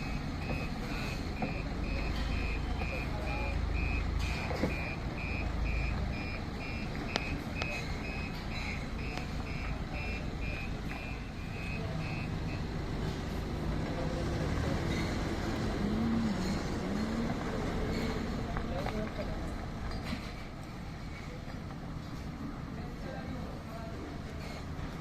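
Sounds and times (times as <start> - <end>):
truck reversing alarm beeping: 0.0 - 13.6
low engine rumble: 0.0 - 25.0.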